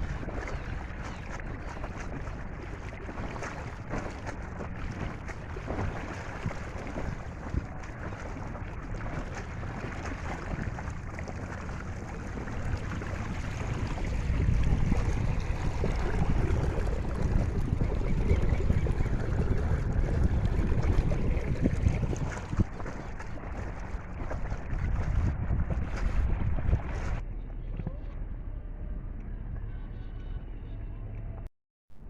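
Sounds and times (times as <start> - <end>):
wind buffeting microphone: 0.0 - 28.0
choppy water: 0.0 - 32.0.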